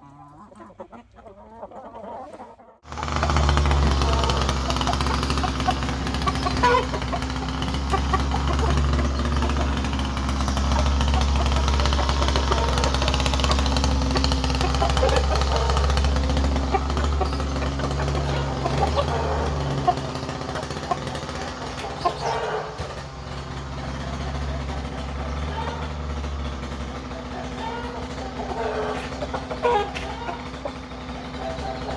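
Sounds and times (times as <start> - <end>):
chickens clucking: 0.0 - 31.9
low machine hum: 2.9 - 22.2.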